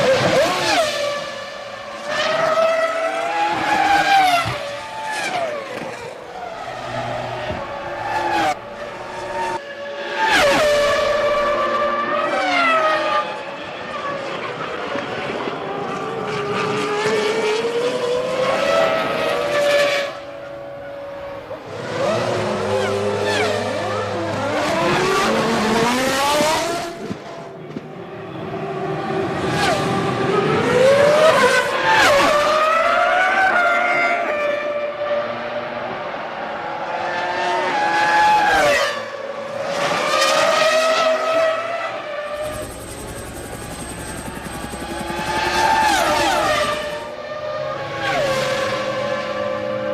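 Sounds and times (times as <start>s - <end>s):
racing car engines accelerating: 0.0s - 27.3s.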